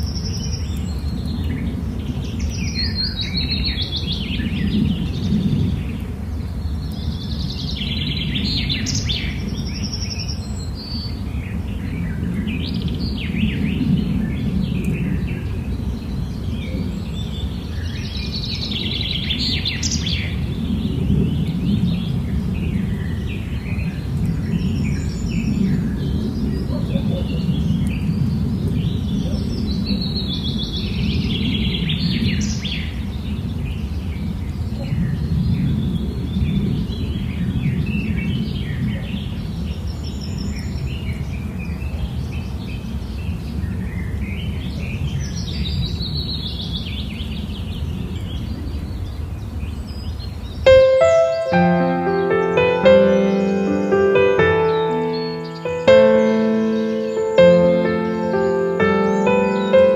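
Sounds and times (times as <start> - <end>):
small birds chirping: 50.1 - 59.9.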